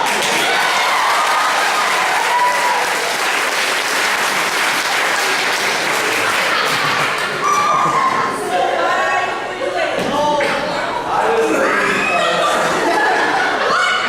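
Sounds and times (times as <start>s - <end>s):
audience applauding: 0.0s - 8.0s
voices: 6.2s - 14.0s.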